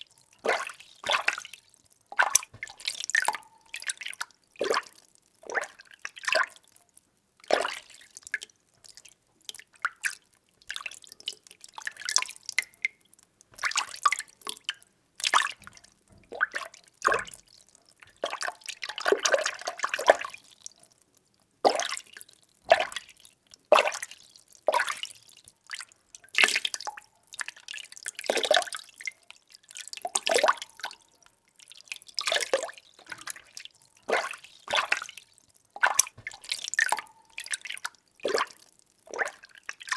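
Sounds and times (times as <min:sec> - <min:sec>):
water being stirred: 0:32.2 - 0:37.7.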